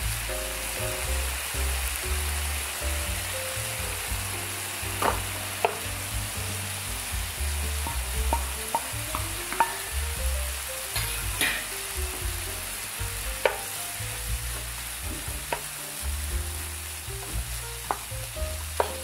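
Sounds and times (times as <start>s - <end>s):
food sizzling in a pan: 0.0s - 19.0s
wooden spoon knocking pan: 5.0s - 6.1s, 7.8s - 10.4s, 13.4s - 13.8s, 15.0s - 15.7s, 17.2s - 19.0s.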